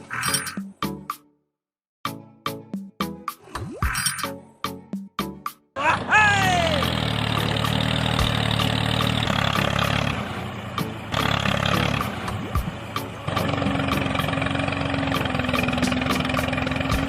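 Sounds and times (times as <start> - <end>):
engine starting and idling: 6.7 - 17.0.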